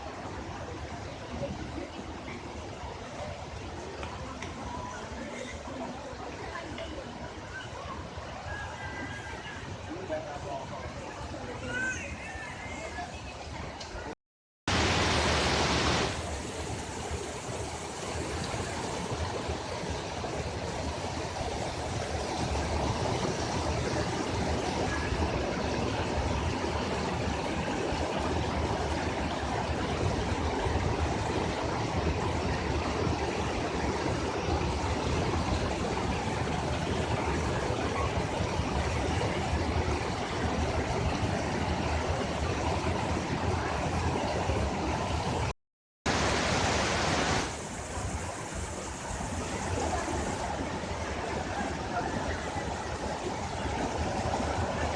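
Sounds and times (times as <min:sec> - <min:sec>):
waterfall rushing: 0:14.7 - 0:45.5, 0:46.1 - 0:54.9.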